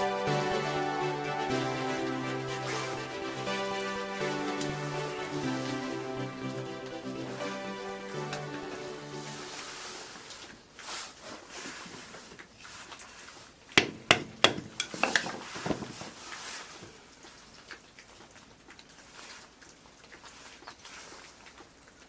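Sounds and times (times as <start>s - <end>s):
sharp knocks: 13.8s - 15.2s
light clattering knocks: 13.8s - 15.9s.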